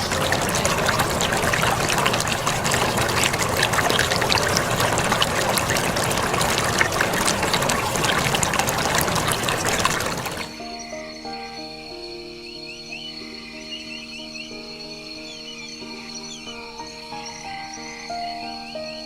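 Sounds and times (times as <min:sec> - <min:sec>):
water splashing and trickling: 0:00.0 - 0:10.7.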